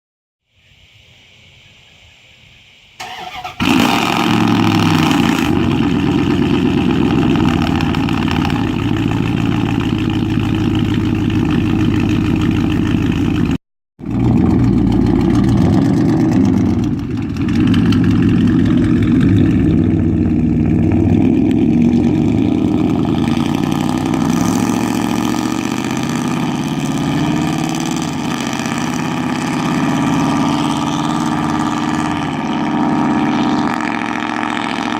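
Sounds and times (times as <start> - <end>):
loud engine starting and running: 3.0 - 34.9.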